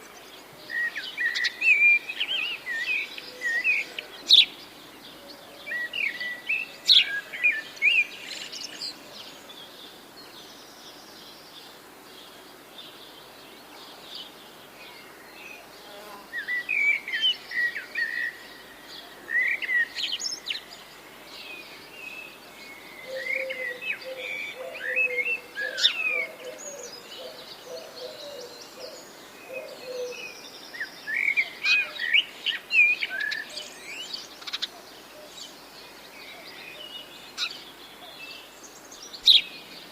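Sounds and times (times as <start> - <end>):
songbirds chirping and whistling: 0.0 - 11.8, 12.9 - 39.9
lower bird call: 22.7 - 30.4.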